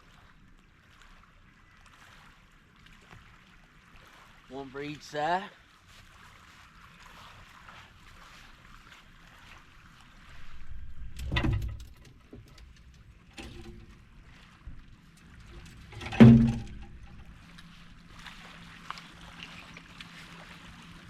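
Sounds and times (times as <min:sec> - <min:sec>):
wind rumbling on microphone: 0:09.4 - 0:21.0
heavy thumps: 0:16.0 - 0:17.2.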